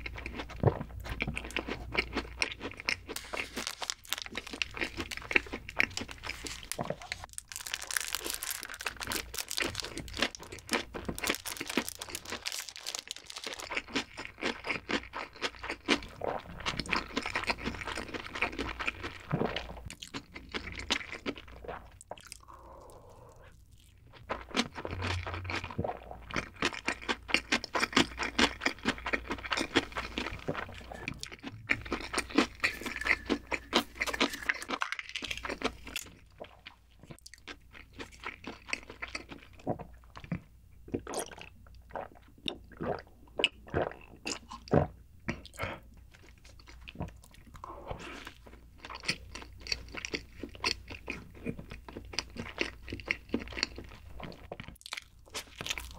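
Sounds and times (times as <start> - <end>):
crunchy chewing: 0.0 - 23.1, 23.7 - 39.6.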